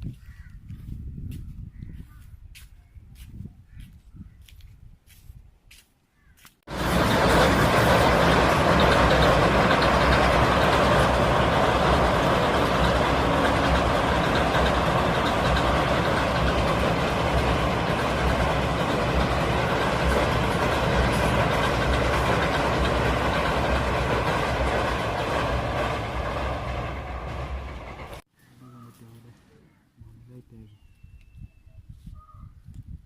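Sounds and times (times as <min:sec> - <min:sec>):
train wheels rumbling on rails: 0:06.7 - 0:28.2.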